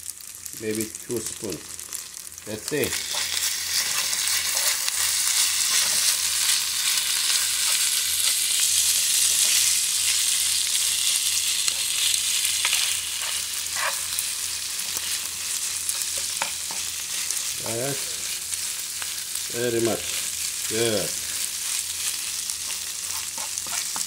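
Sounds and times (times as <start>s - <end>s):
rice sizzling in a frying pan: 0.0s - 24.0s
utensil scraping and tapping pan: 23.1s - 24.0s.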